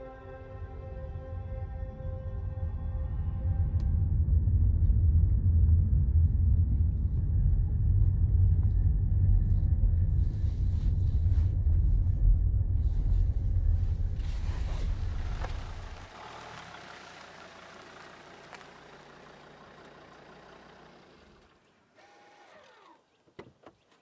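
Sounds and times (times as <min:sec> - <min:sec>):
car interior rumble: 0:00.1 - 0:21.6.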